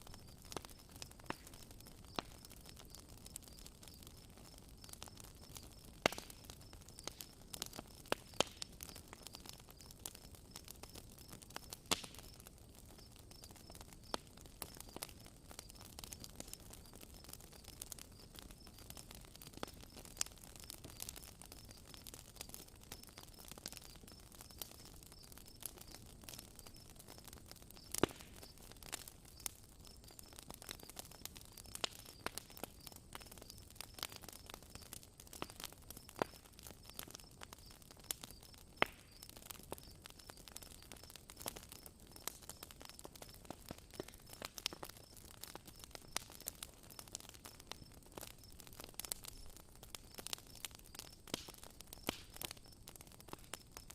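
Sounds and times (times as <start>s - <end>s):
campfire crackling: 0.0s - 53.9s.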